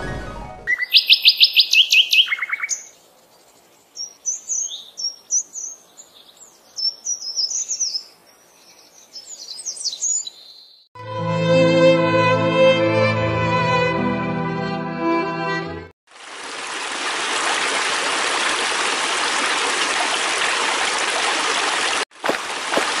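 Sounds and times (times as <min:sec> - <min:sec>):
songbirds singing: 0:00.7 - 0:10.9
string music with violin: 0:11.0 - 0:16.0.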